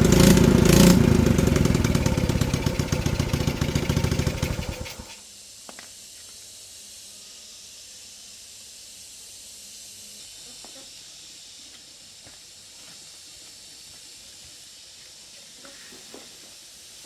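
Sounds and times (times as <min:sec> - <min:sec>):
small engine running: 0:00.0 - 0:05.2
faint steady hiss: 0:05.1 - 0:17.0.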